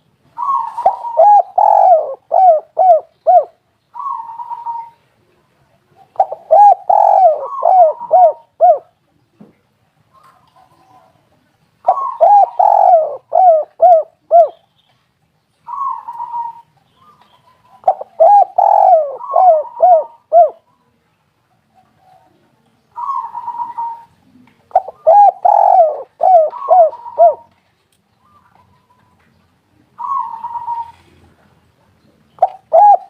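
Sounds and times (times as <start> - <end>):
dove cooing: 0.4 - 9.0, 11.8 - 14.6, 15.7 - 20.7, 23.0 - 27.6, 29.8 - 31.4, 32.4 - 33.0.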